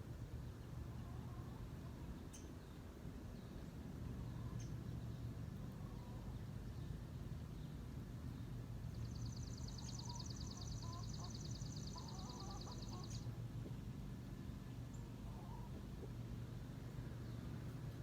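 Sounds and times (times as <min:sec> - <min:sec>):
steady low hum: 0:00.0 - 0:18.0
songbird trilling: 0:09.0 - 0:13.3.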